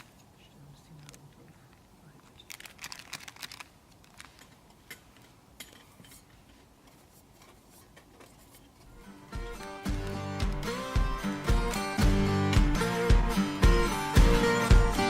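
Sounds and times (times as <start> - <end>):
camp cookware and cutlery clattering: 4.8 - 6.5.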